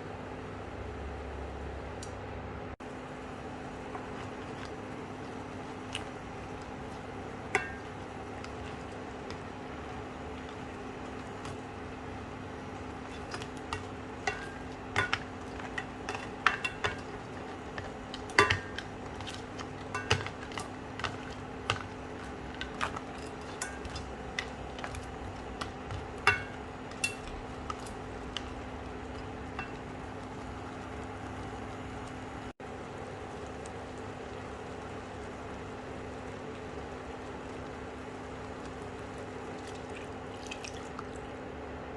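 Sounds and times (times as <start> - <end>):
steady low hum: 0.0 - 41.9
metal utensil stirring in pot: 6.1 - 29.9.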